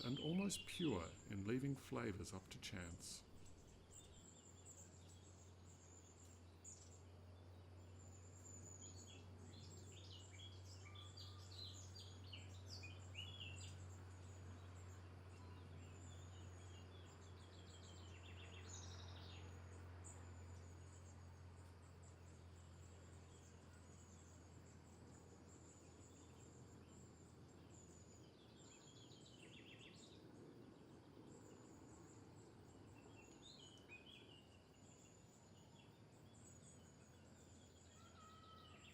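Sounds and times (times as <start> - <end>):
bird chirps and trills: 0.0 - 7.0
steady low hum: 0.0 - 10.5.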